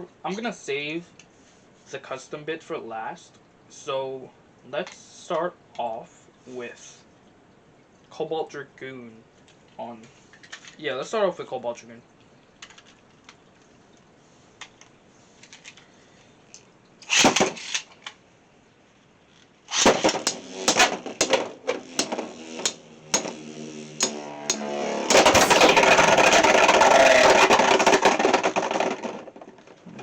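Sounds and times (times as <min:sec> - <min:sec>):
launcher rip: 0:17.1 - 0:17.7, 0:19.7 - 0:21.2, 0:24.0 - 0:27.8
spinning tops clicking and knocking: 0:19.7 - 0:21.4, 0:25.1 - 0:28.5
spinning tops grinding clatter: 0:25.1 - 0:28.3.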